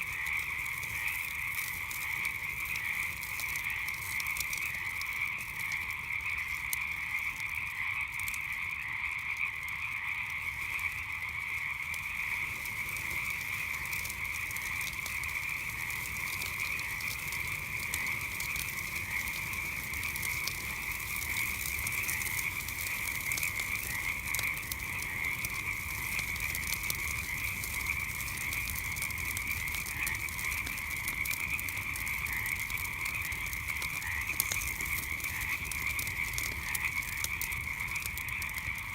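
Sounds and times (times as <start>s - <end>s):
campfire crackling: 0.0s - 38.9s
frogs calling: 0.0s - 38.9s.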